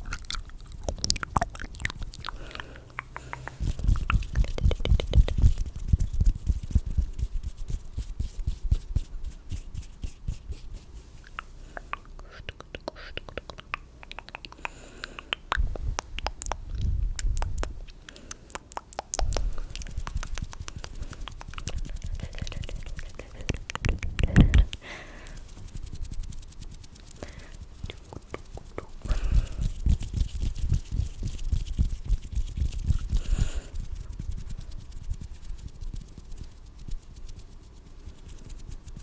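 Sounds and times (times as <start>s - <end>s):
sticky mouth clicks: 0.0s - 6.3s, 11.3s - 25.4s, 27.0s - 30.7s
rubbing against microphone: 0.0s - 13.4s, 19.2s - 39.0s.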